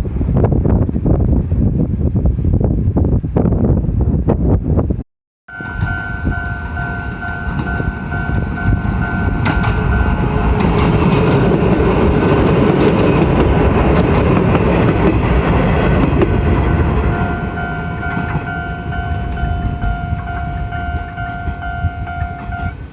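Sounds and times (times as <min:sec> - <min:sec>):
train rumble with wheel clatter: 0:00.0 - 0:22.9
two-pitch crossing warning signal: 0:05.5 - 0:10.4, 0:16.6 - 0:22.9.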